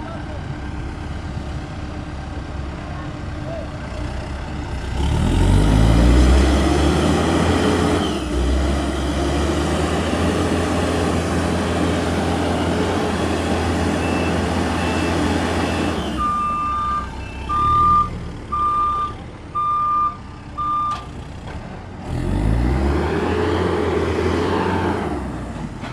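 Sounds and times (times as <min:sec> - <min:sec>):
heavy vehicle engine running: 0:00.0 - 0:25.9
reversing alarm beeping: 0:13.9 - 0:21.1.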